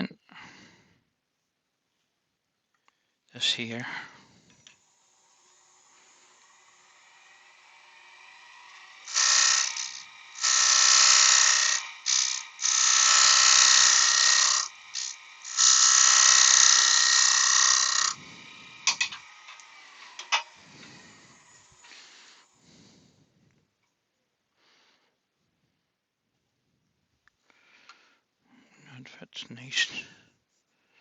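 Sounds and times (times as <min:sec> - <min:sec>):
lathe tool cutting wood: 0:04.8 - 0:22.6.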